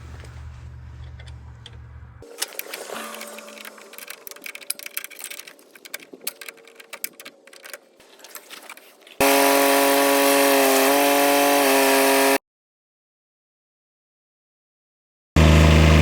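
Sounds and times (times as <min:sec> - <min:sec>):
tools clicking on metal fittings: 0:02.4 - 0:08.8
loud steady engine: 0:09.2 - 0:12.4, 0:15.4 - 0:16.0.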